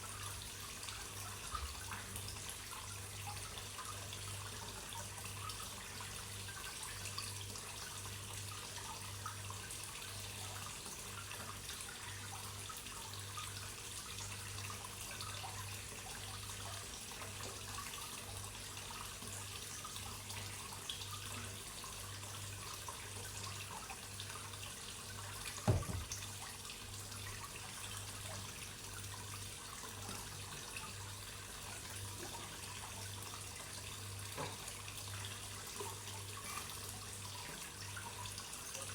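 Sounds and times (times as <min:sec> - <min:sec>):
water trickling into a pond: 0:00.0 - 0:38.9
short thump: 0:25.6 - 0:26.2.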